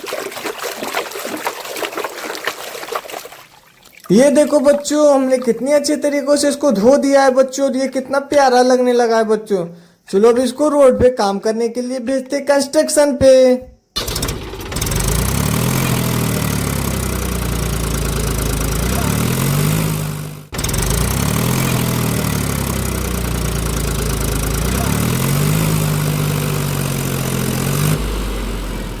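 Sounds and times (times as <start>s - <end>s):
truck engine running: 14.0s - 29.0s.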